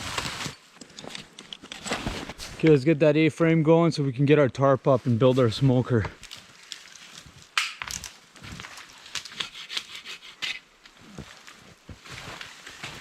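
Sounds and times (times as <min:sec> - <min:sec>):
wooden branches snapping and knocking: 0:06.2 - 0:09.4.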